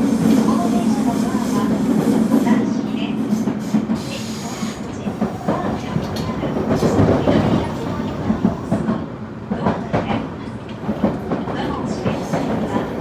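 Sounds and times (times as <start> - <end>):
wheel and track rumble: 9.6 - 13.0.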